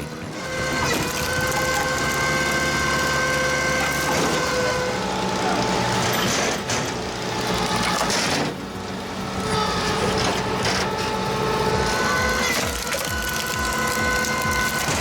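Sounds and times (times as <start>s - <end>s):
wood crushing as log splits: 0.0s - 4.6s, 9.5s - 15.0s
tractor engine running: 0.0s - 5.9s, 6.5s - 15.0s.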